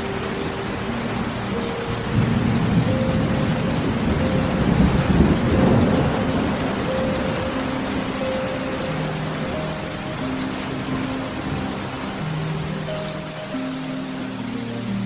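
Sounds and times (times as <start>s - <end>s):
steady rain: 0.0s - 15.0s
thunder rumbling: 0.9s - 11.9s.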